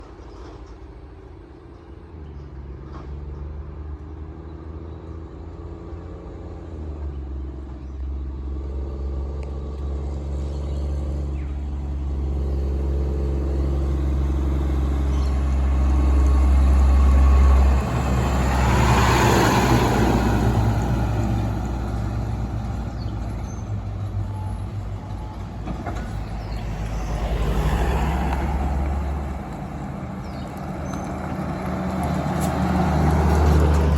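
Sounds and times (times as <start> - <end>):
truck diesel engine droning: 0.0 - 33.9.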